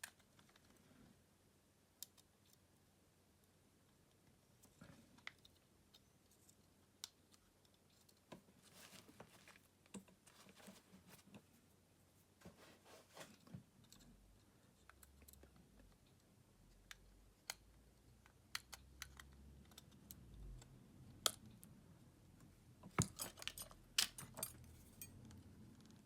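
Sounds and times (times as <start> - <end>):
small repair tools clicking and tapping: 16.9 - 21.5, 22.9 - 25.3.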